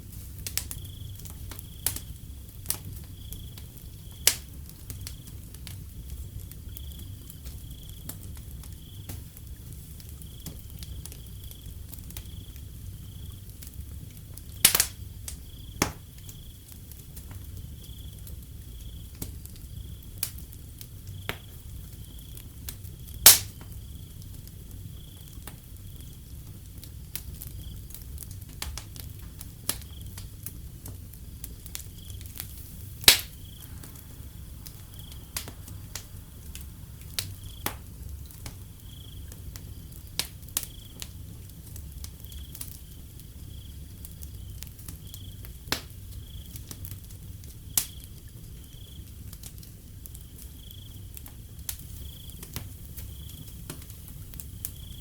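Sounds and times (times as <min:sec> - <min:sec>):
wood fire crackling and popping: 0:00.0 - 0:55.0
crickets chirping: 0:00.2 - 0:55.0
low rumble: 0:32.7 - 0:40.0.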